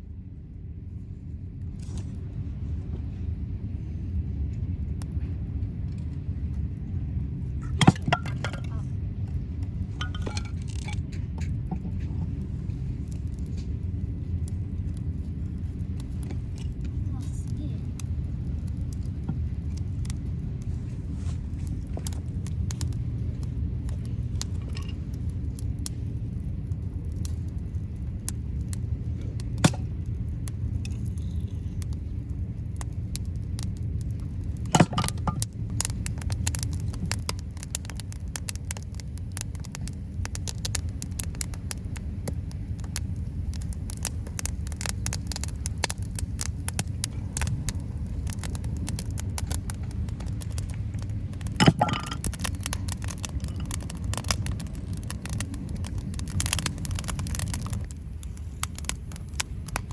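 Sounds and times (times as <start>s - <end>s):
campfire crackling and popping: 1.0s - 59.9s.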